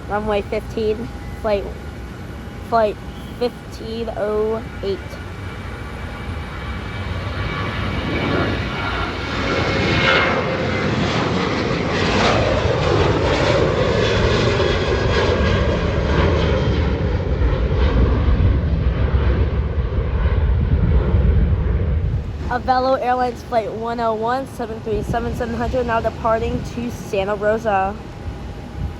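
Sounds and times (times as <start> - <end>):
jet engines roaring: 0.0 - 28.9
jet whooshing past: 6.2 - 23.1
deep low rumble: 6.2 - 23.2.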